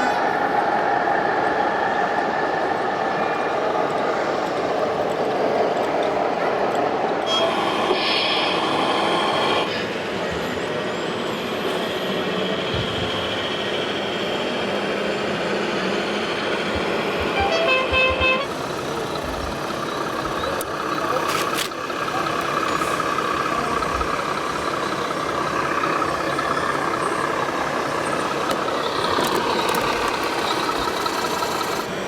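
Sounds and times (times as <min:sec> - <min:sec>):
electric motors whining: 0:07.2 - 0:32.0
toy truck horn toot: 0:07.3 - 0:08.0, 0:17.3 - 0:18.6.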